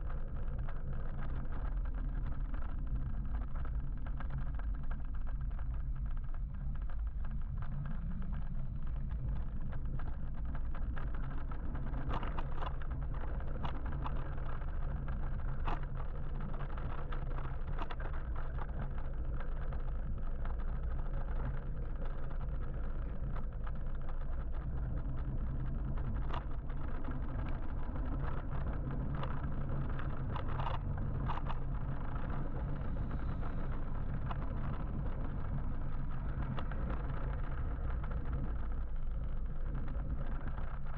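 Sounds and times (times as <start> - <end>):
low steady hum: 0.0 - 40.9
wind rumble on microphone: 0.0 - 40.9
road noise: 21.3 - 40.9.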